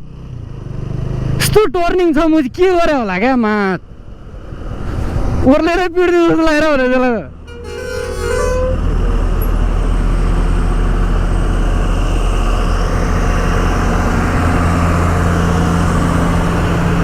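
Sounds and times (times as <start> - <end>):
road and wind noise: 0.0 - 17.0
motorcycle engine running: 9.0 - 17.0.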